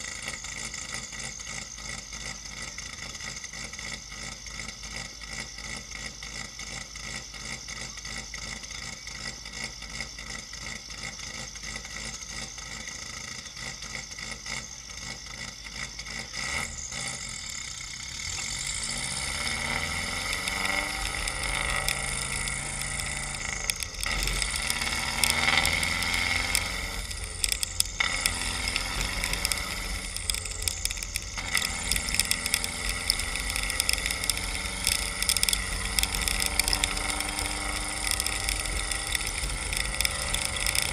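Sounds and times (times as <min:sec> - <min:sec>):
car engine idling and revving: 0:00.0 - 0:40.9
exhaust pops and cracks: 0:17.2 - 0:40.9.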